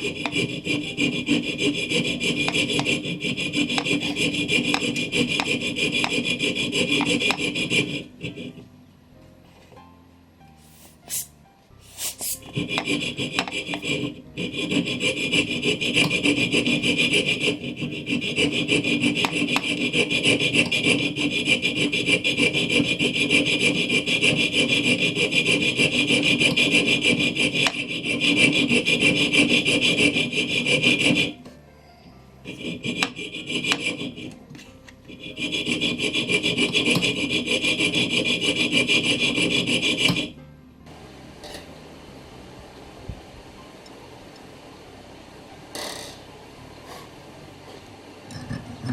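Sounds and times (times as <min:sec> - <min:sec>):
saw cutting through metal plate: 0:00.0 - 0:08.1, 0:12.6 - 0:31.4, 0:32.5 - 0:34.3, 0:35.1 - 0:40.3.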